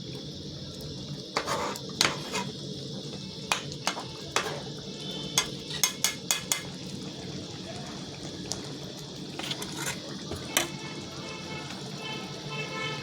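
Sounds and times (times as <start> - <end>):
metal spoon knocking on pot: 5.4 - 6.7.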